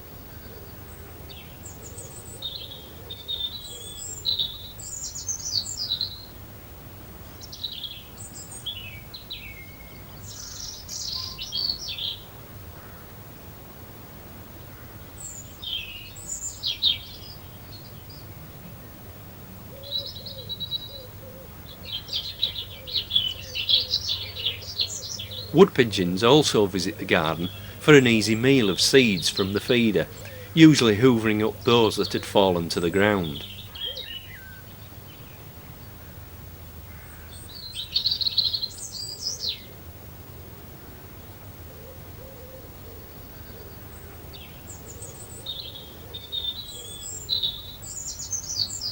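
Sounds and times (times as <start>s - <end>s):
small birds chirping: 0.0s - 13.0s, 14.6s - 19.0s, 19.8s - 36.2s, 36.8s - 39.8s, 42.9s - 48.9s
bird trill: 21.8s - 34.8s
faint low cooing: 30.0s - 30.7s.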